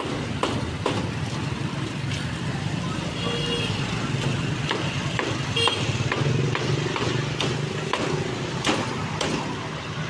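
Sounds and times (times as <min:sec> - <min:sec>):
motorbike engines running: 0:00.0 - 0:10.0
sharp knocks: 0:04.2 - 0:09.6.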